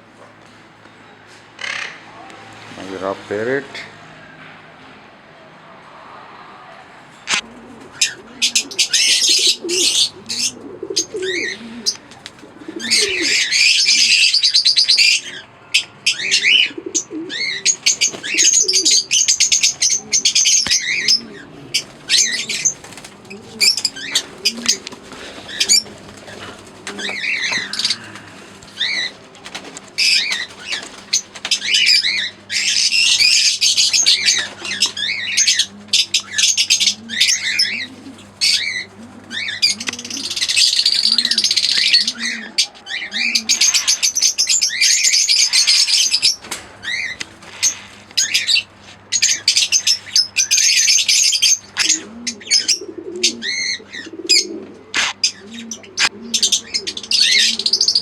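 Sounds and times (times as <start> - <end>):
birds chattering shrilly: 0.0 - 4.6, 7.1 - 58.0
low cooing calls: 3.6 - 58.0
steady low hum: 17.3 - 57.4.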